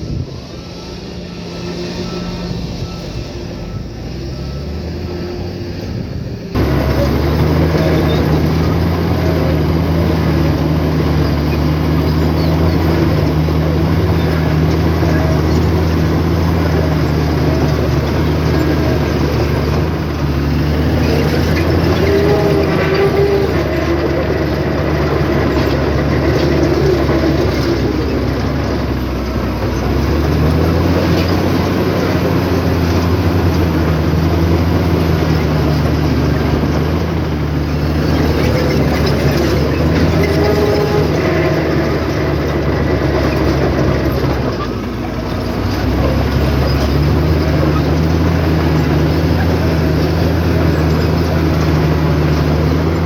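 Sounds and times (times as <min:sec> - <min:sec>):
diesel earthmoving machine running: 0:00.0 - 0:53.0.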